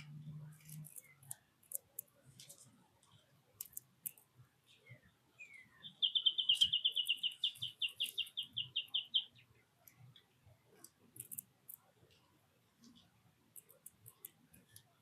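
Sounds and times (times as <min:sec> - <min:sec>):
songbird trilling: 0:05.4 - 0:09.4
high bird chip calls: 0:05.4 - 0:09.5.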